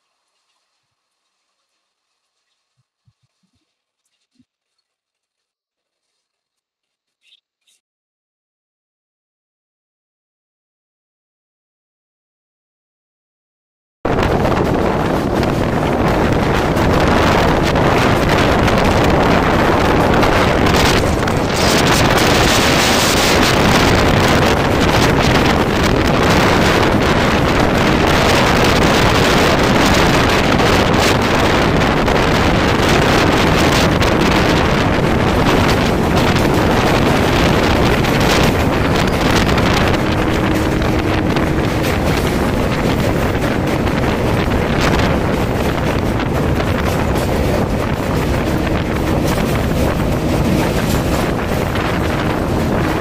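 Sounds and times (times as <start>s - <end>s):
passing train rush: 14.1s - 53.0s
wind buffeting microphone: 14.1s - 53.0s
train wheels on rails: 14.2s - 53.0s.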